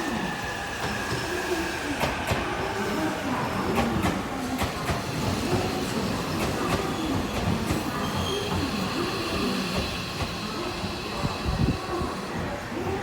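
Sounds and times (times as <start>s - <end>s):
electric train running on rails: 0.0s - 13.0s
faint high wheel squeal: 7.9s - 9.0s.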